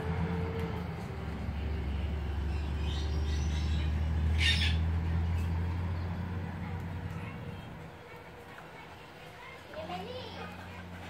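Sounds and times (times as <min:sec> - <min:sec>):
sharp high-pitched bird call: 0:02.8 - 0:04.8.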